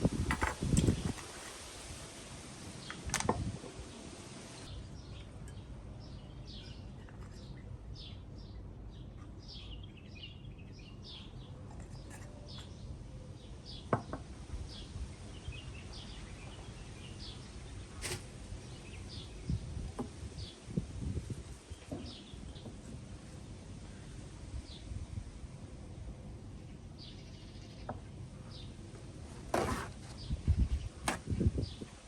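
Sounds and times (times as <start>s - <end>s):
small birds chirping: 3.9s - 14.0s, 14.6s - 23.0s.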